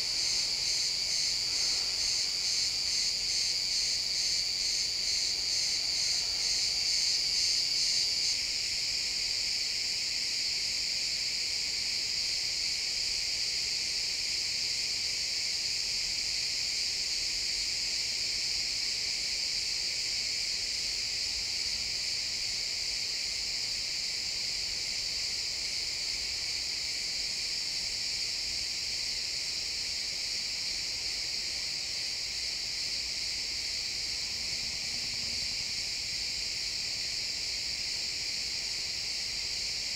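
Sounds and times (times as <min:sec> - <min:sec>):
crickets chirping: 0:00.0 - 0:39.9
loud pulsing cricket chirp: 0:00.0 - 0:39.9.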